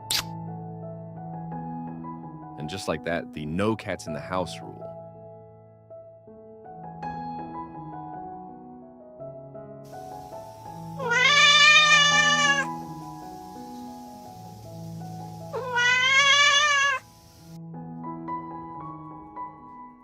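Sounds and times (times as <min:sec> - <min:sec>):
cat meowing: 0:10.8 - 0:12.8, 0:15.5 - 0:17.2.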